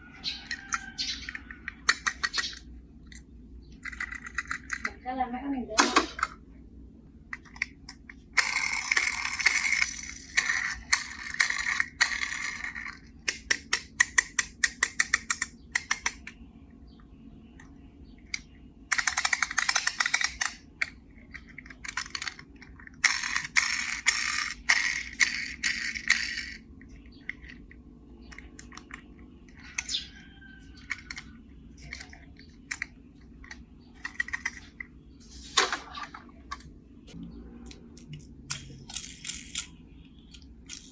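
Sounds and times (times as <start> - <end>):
toy cars clicking and rattling: 0.4 - 3.2, 3.8 - 5.0, 7.3 - 16.4, 18.3 - 26.6, 28.3 - 30.1, 30.8 - 34.9, 38.0 - 39.7, 40.3 - 40.9.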